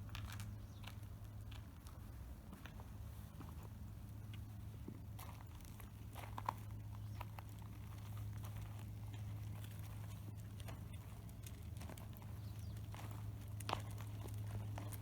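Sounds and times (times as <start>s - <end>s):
steady low hum: 0.0s - 15.0s
faint ticks and taps: 4.3s - 15.0s.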